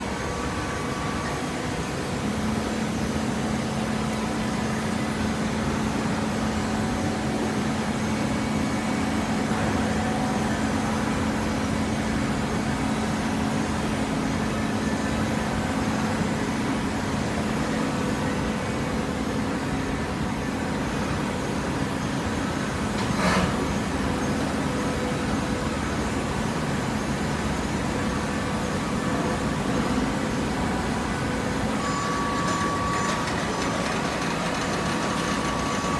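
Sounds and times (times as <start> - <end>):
hydraulic baler humming: 21.6 - 35.9.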